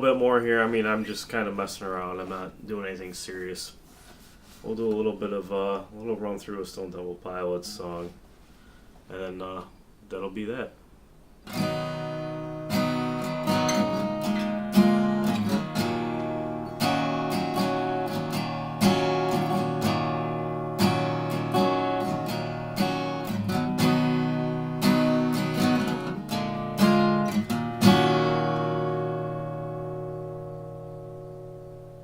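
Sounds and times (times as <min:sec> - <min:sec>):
acoustic guitar strummed chords: 0:11.4 - 0:32.0.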